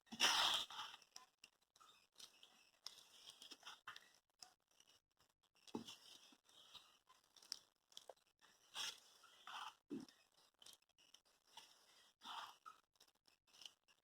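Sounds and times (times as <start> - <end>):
spoon stirring batter in bowl: 0.1 - 10.9.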